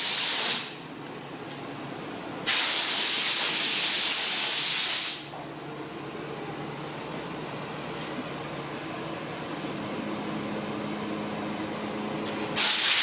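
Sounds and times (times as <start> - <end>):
steam jet hissing: 0.0 - 0.8, 2.5 - 5.3, 12.6 - 13.0.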